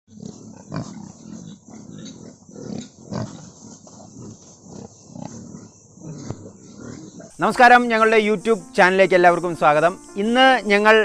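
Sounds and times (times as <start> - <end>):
pigs grunting: 0.1 - 8.4
pig squealing: 0.1 - 11.0.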